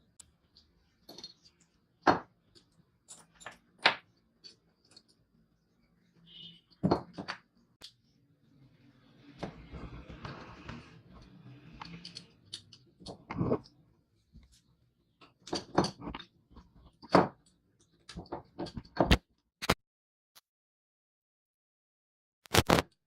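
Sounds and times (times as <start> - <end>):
parts knocking and clicking: 0.0 - 5.4, 11.2 - 13.8, 15.2 - 19.2.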